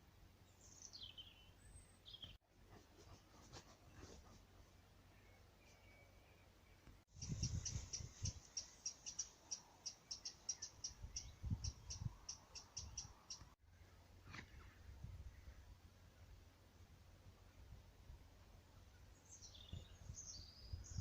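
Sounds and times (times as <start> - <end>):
songbird singing: 0.3 - 2.4, 4.8 - 16.4, 18.6 - 21.0.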